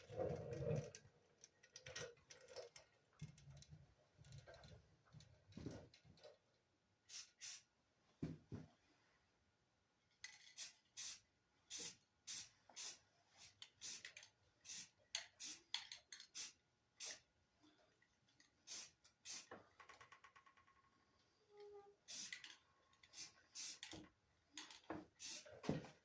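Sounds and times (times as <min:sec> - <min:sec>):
aerosol spray can hissing: 0:07.1 - 0:07.7, 0:10.6 - 0:14.0, 0:14.7 - 0:15.7, 0:18.7 - 0:19.5, 0:22.1 - 0:22.4, 0:23.2 - 0:23.9, 0:25.2 - 0:25.6.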